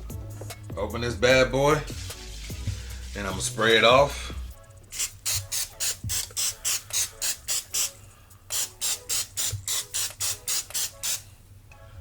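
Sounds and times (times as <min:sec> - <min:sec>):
cooking oil spray hissing: 0:04.9 - 0:11.3.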